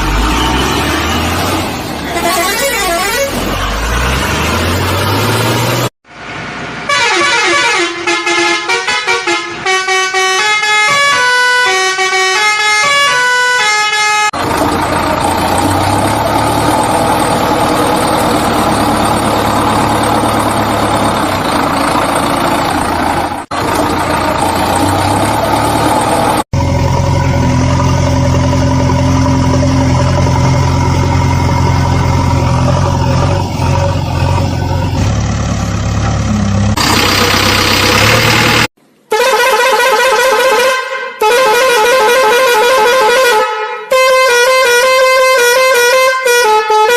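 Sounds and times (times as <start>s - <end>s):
horn-like tones: 0.0s - 4.0s, 39.1s - 46.9s
vehicle engine hum: 0.0s - 6.9s, 14.4s - 39.0s.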